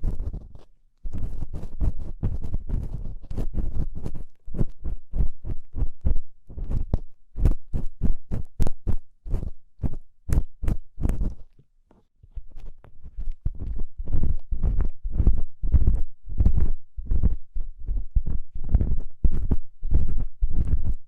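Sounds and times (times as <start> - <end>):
ear pick scraping a microphone: 0.0 - 11.6, 12.3 - 17.4.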